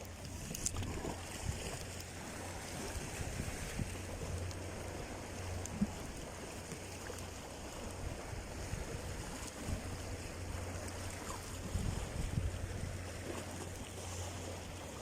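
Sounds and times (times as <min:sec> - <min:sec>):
wind rushing on microphone: 0:02.6 - 0:04.2, 0:08.1 - 0:10.3, 0:11.2 - 0:13.0.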